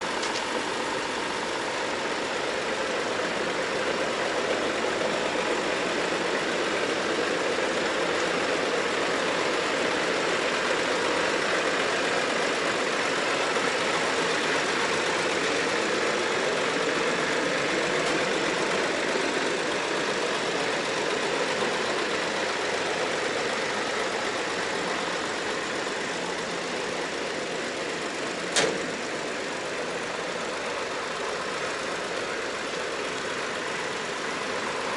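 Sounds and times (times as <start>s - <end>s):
diesel truck engine idling: 0.0s - 34.9s
sharp click: 28.5s - 28.9s.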